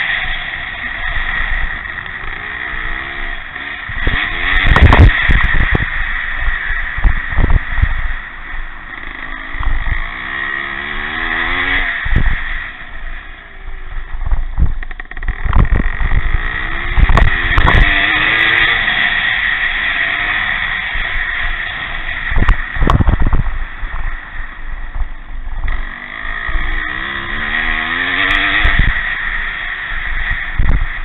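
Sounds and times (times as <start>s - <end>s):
motorcycle engines revving: 0.0s - 31.0s
wind buffeting microphone: 3.9s - 8.2s, 14.0s - 18.2s, 22.3s - 25.8s, 28.5s - 29.0s.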